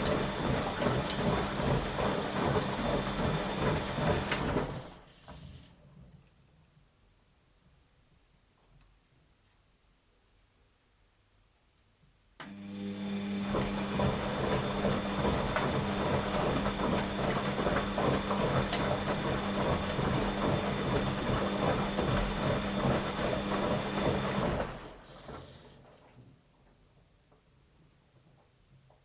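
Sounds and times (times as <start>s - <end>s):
wet laundry tumbling and rattling: 0.0s - 5.1s, 13.2s - 26.7s
washing machine motor hum: 0.0s - 5.4s, 12.4s - 26.0s.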